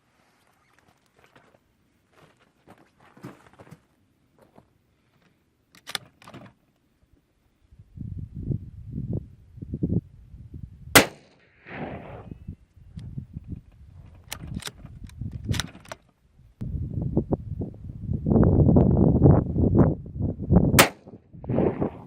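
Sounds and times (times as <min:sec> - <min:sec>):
sharp clicks: 0:05.7 - 0:06.3
rifle shot: 0:10.9 - 0:12.4, 0:20.8 - 0:22.0.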